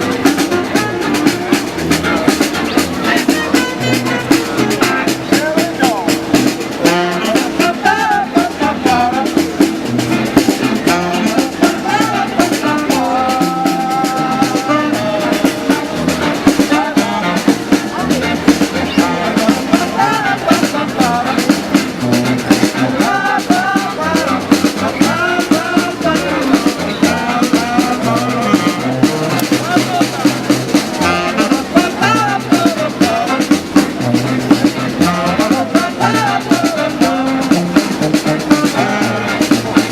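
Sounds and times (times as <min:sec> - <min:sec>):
drum kit beat: 0:00.0 - 0:39.9.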